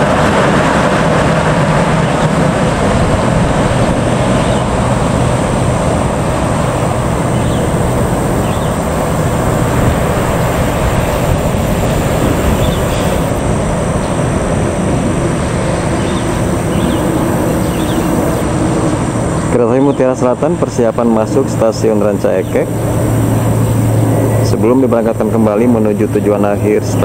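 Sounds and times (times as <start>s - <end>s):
low hum: 0.0s - 19.6s, 20.4s - 27.0s
train wheels rumbling on rail: 0.0s - 19.6s.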